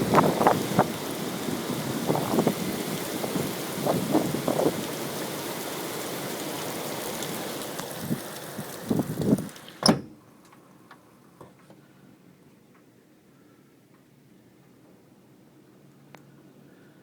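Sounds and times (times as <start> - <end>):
heavy rain hissing: 0.0 - 9.9.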